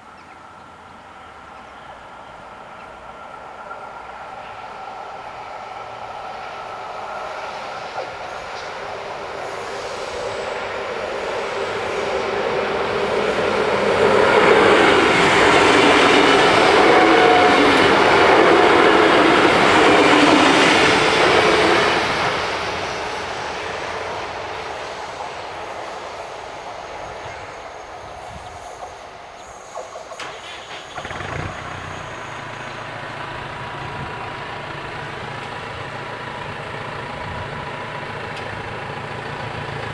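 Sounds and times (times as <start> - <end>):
train wheels rushing on rails: 0.0 - 39.9
low hum of idling engine: 31.0 - 39.9.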